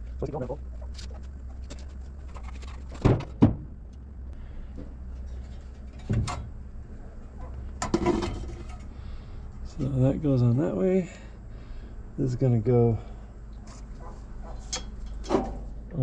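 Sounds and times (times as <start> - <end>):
steady low hum: 0.0 - 16.0
metal rattle: 7.4 - 8.9
metal parts clunking: 7.8 - 8.9.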